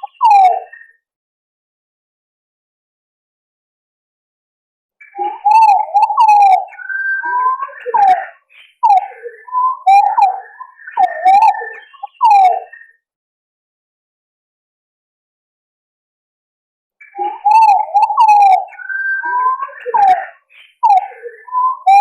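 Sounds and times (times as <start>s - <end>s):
pigeons whistling fluty notes: 5.2s - 12.8s, 17.1s - 22.0s.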